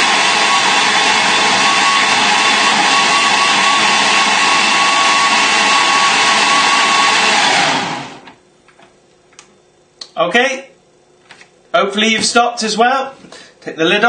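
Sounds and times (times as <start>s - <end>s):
blender running: 0.0s - 8.4s.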